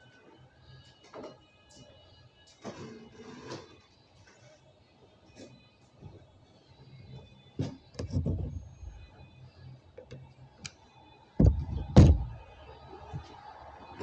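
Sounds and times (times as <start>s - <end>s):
heavy thuds against door: 11.4s - 12.4s.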